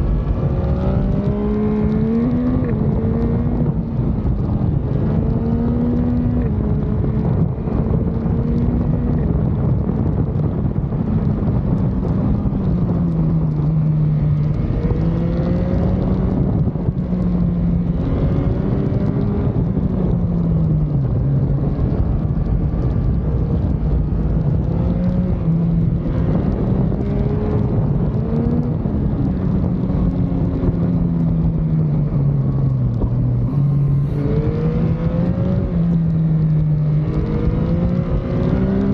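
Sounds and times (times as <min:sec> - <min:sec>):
motorcycle engine accelerating: 0:00.0 - 0:38.9
steady low rush: 0:32.8 - 0:35.8.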